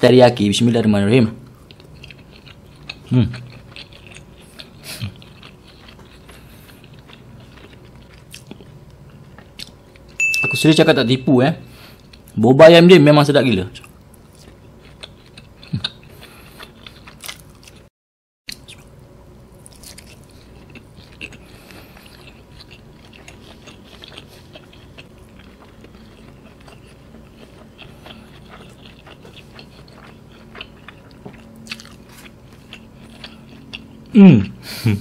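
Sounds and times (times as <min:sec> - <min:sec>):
person chewing: 0:01.4 - 0:10.5, 0:11.6 - 0:12.4, 0:13.8 - 0:17.9, 0:18.5 - 0:18.9, 0:19.5 - 0:35.0
small crunches: 0:19.6 - 0:33.4.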